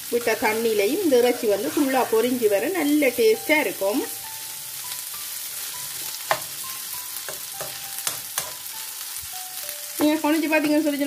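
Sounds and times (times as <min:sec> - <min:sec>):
chicken sizzling in a pan: 0:00.0 - 0:11.0
metal spoon clicking against pan: 0:07.3 - 0:08.6.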